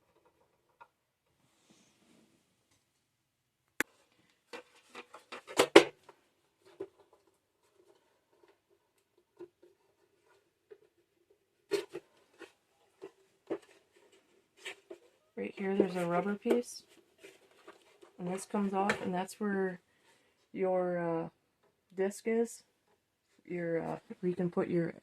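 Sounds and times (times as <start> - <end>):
plastic parts clicking and knocking: 3.8 - 19.2
plastic clatter: 3.9 - 19.2.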